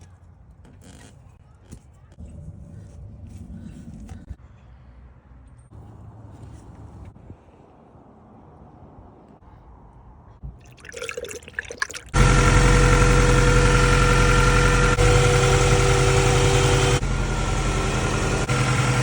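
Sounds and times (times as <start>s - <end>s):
car engine starting and idling: 12.2s - 19.0s.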